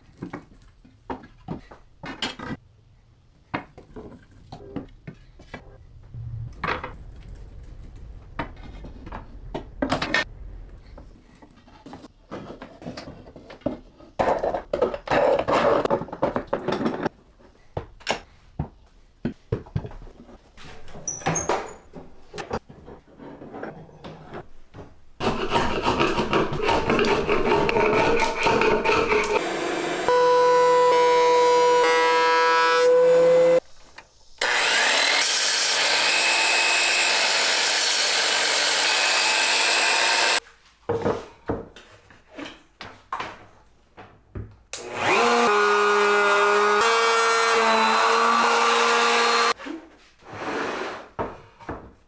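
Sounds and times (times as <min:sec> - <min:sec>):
hand sawing wood: 0:25.2 - 0:30.1, 0:34.4 - 0:40.4, 0:44.8 - 0:49.6
power tool motor running: 0:29.3 - 0:33.6, 0:34.4 - 0:40.4, 0:44.8 - 0:49.5.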